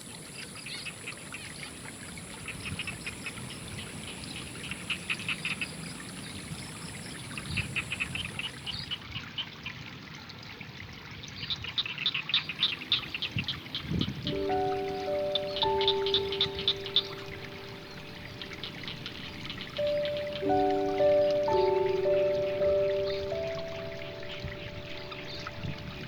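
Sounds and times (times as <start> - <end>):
water trickling: 1.3 - 26.0
frogs calling: 12.5 - 26.0.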